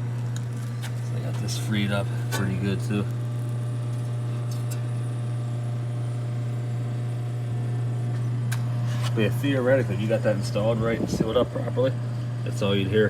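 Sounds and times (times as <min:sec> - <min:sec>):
air conditioner hum: 0:00.0 - 0:13.0
blower air rush: 0:08.7 - 0:12.4.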